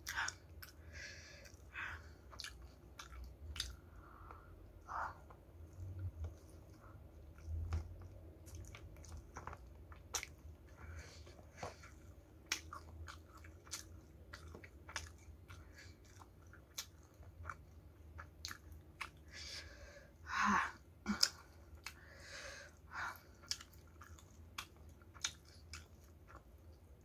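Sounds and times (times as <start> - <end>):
crunchy chewing: 11.5 - 19.2, 23.4 - 26.8.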